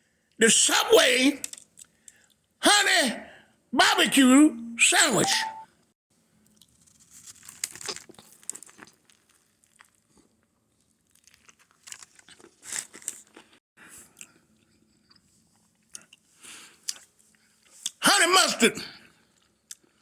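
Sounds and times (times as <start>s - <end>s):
sandwich crunching: 6.5s - 13.6s.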